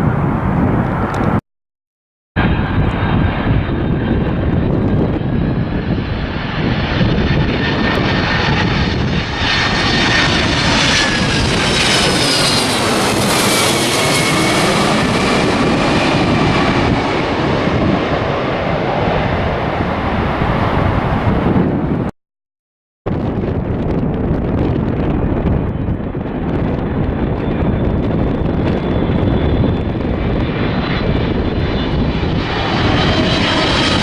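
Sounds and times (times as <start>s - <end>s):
jet airliner passing: 0.0s - 1.4s, 2.4s - 22.1s, 23.1s - 34.0s.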